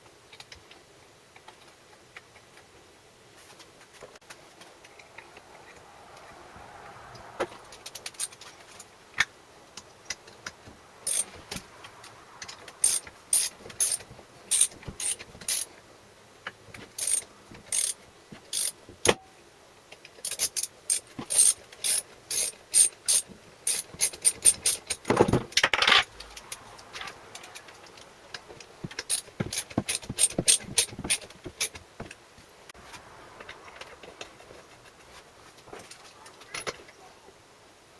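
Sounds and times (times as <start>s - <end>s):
ratchet clicking: 11.1s - 11.4s, 12.8s - 15.7s, 16.9s - 18.8s, 20.2s - 25.2s, 28.9s - 31.8s
loud rasping noise: 12.8s - 15.7s.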